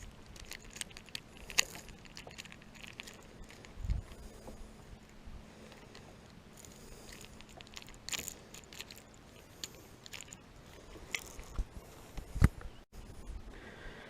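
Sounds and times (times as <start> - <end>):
fishing tackle clinking: 5.7 - 11.6.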